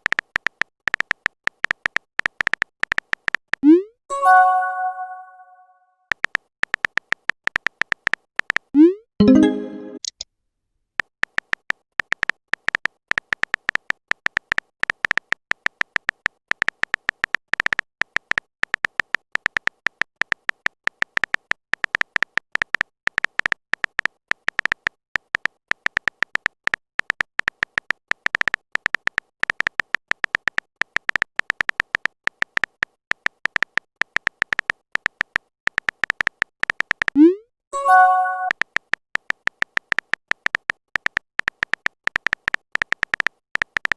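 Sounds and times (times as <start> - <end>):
message notification chime: 4.1 - 5.7, 9.2 - 10.1, 37.2 - 38.5
phone keyboard beeping taps: 37.1 - 38.6.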